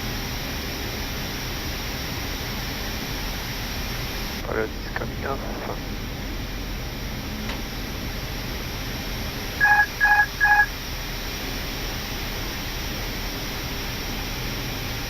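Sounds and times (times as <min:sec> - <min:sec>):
short electronic beeps: 0:09.6 - 0:10.7.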